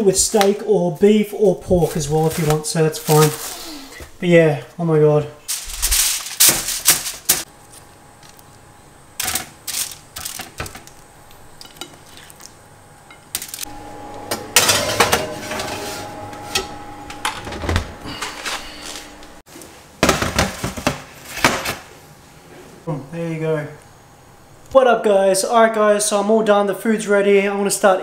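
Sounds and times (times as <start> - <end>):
steady cooking noise: 5.4 - 24.8
pots and pans clattering: 14.5 - 15.8.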